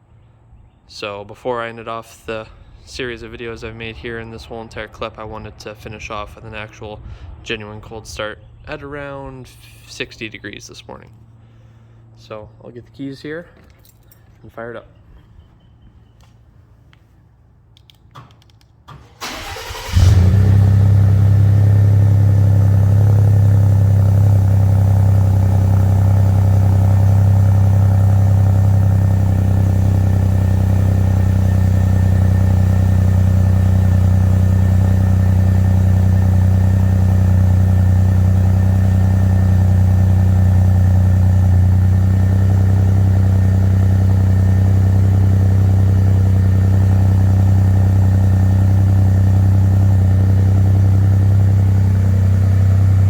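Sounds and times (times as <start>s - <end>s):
engine cranking and starting: 18.2s - 22.6s
loud engine idle: 19.2s - 53.0s.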